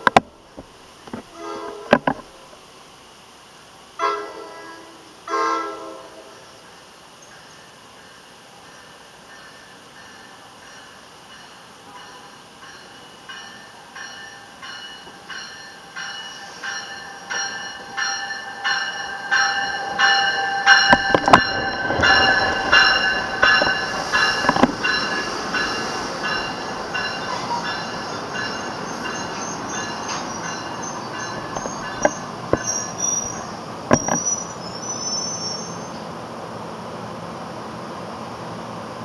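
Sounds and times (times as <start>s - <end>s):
train wheels clicking on rail joints: 0.0s - 2.6s, 6.6s - 35.4s
train bell ringing: 7.2s - 36.0s
high brake squeals: 16.3s - 36.1s.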